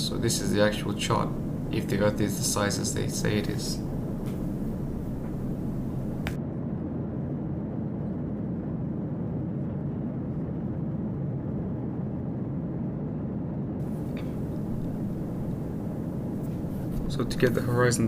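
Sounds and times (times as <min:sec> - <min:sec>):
airliner cabin rumble: 0:00.0 - 0:06.4, 0:13.8 - 0:18.0.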